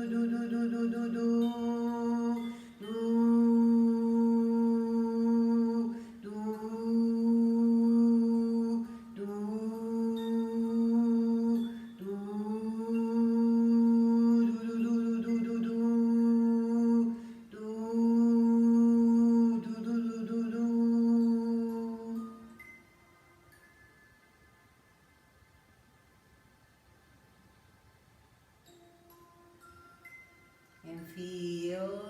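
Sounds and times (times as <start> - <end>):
person humming long notes: 0.0 - 22.6.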